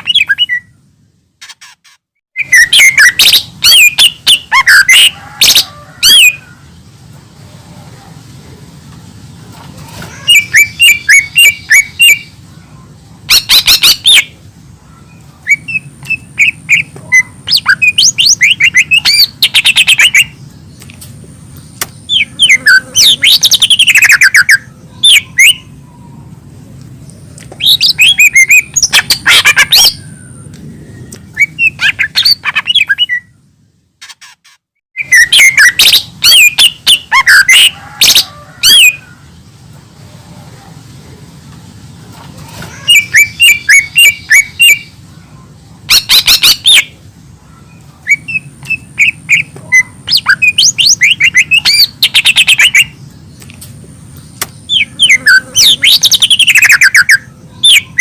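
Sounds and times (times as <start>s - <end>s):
bird chirping and trilling: 0.0s - 0.8s, 1.4s - 6.9s, 10.0s - 20.9s, 21.5s - 26.4s, 27.0s - 39.5s, 42.6s - 53.5s, 54.1s - 58.0s
low steady hum: 2.6s - 34.1s.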